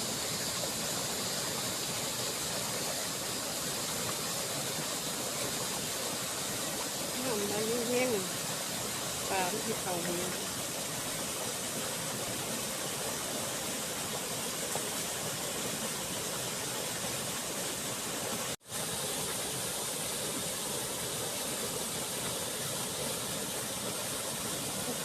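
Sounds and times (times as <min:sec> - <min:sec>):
runoff water rushing: 0:00.0 - 0:25.0.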